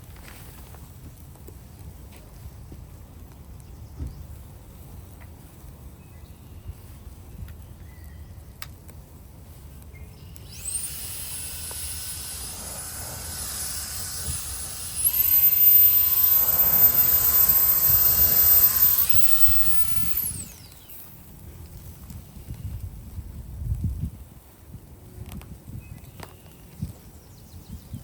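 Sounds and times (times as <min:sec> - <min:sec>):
small high-speed motor whining: 0:10.3 - 0:21.3.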